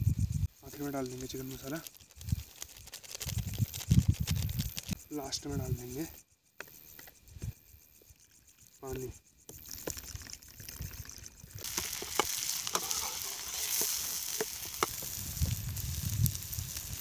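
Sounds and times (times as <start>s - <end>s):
onions sizzling in hot oil: 11.0s - 17.0s
metal ladle scraping a pan: 11.6s - 15.0s.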